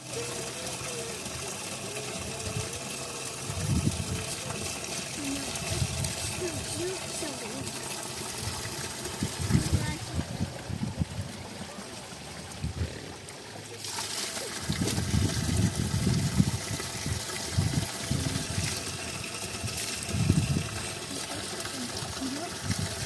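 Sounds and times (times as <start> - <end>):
water running and trickling: 0.0 - 23.0
water splashing and sloshing: 0.0 - 23.0.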